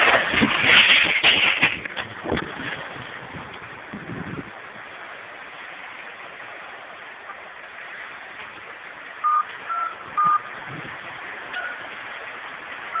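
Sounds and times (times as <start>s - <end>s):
steady rushing noise: 0.0s - 13.0s
phone keypad tones: 9.2s - 10.5s.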